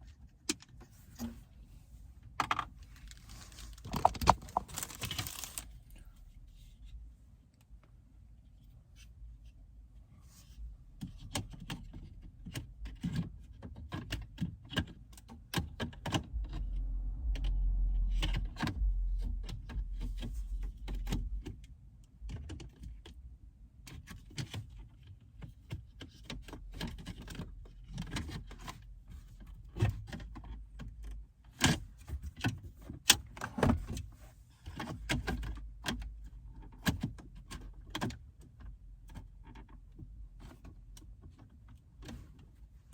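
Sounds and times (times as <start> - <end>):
low rumble: 15.6 - 23.5.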